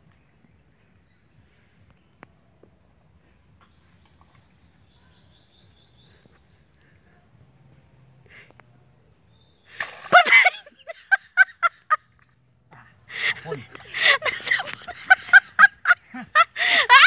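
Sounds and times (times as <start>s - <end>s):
faint bird chirps: 0.0s - 9.7s.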